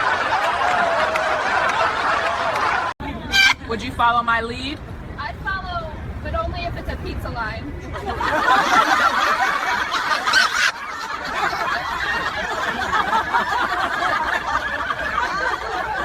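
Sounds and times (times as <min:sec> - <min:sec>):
people laughing: 0:00.0 - 0:03.2, 0:07.9 - 0:16.0.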